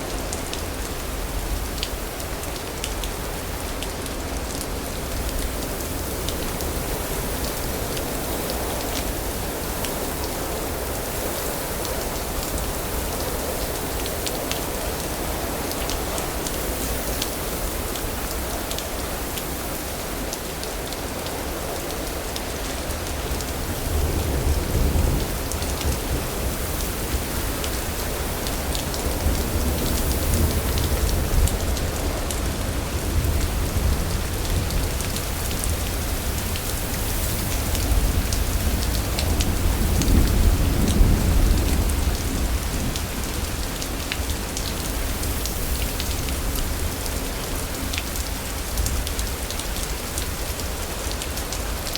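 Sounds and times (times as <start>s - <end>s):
steady rain patter: 0.0s - 51.9s.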